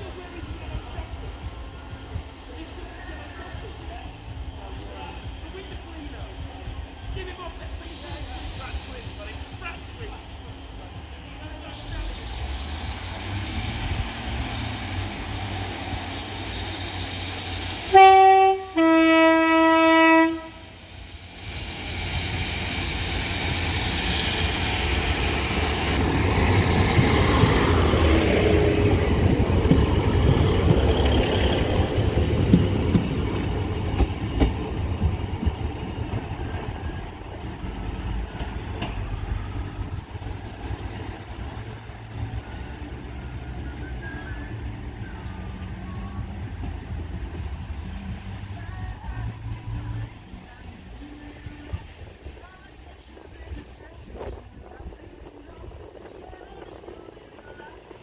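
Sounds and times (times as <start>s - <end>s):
train engine rumbling: 0.0s - 58.0s
train two-tone horn: 17.9s - 20.8s.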